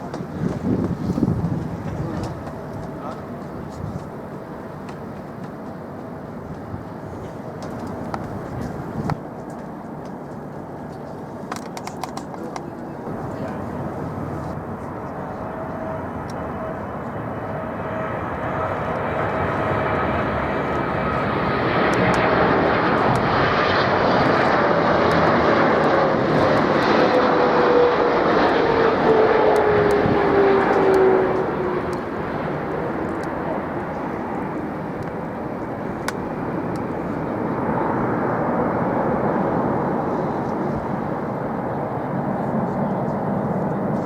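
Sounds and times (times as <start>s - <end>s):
jet airliner passing: 0.0s - 44.0s
jet engine whine sliding down: 13.1s - 42.2s.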